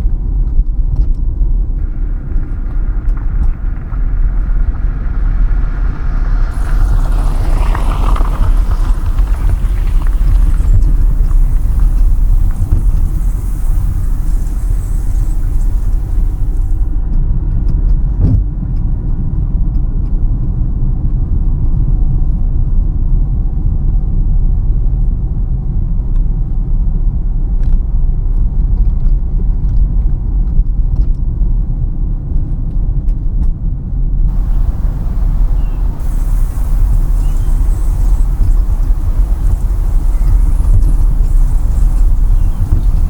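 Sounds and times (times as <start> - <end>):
car engine and tyre rumble: 1.1 - 17.2, 34.3 - 43.0
road hiss: 1.8 - 17.0, 34.3 - 43.0.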